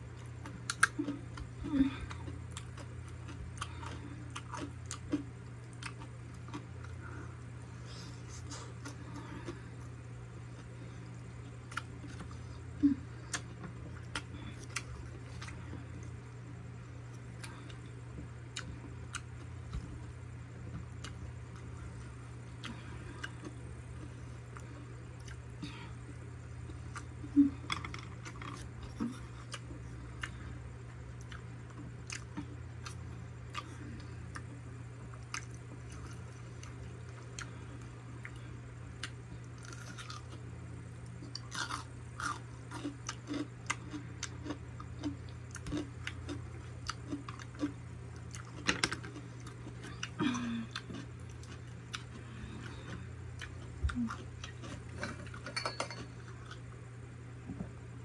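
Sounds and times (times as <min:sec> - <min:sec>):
steady low hum: 0:00.0 - 0:58.0
chewing and wet mouth clicks: 0:43.0 - 0:50.2.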